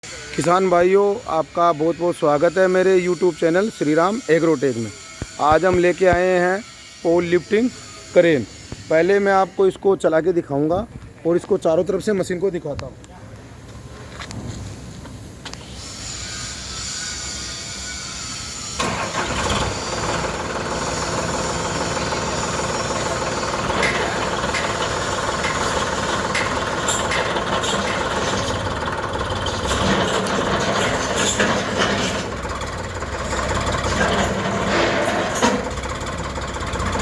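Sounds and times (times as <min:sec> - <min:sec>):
tractor diesel engine starting: 0:18.7 - 0:37.0.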